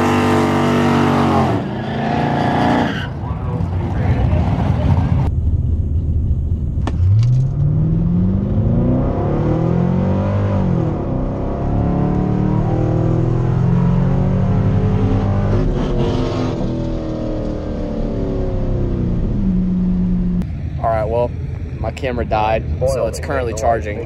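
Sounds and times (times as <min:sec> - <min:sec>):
car engine at full throttle: 0:00.0 - 0:24.0.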